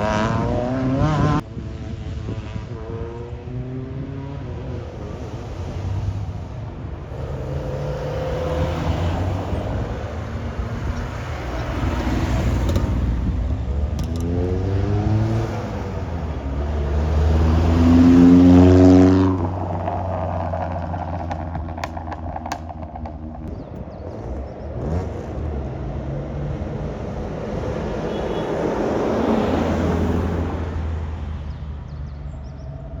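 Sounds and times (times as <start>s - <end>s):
car engine revving: 0.0s - 1.4s, 7.1s - 13.3s, 14.0s - 25.8s
car engines driving off: 0.0s - 33.0s.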